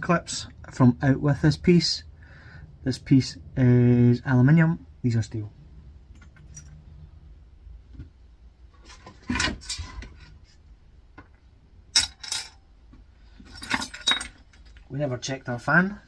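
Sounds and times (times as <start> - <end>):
metal parts clinking and clattering: 6.2 - 6.8, 11.9 - 12.7, 13.4 - 14.9.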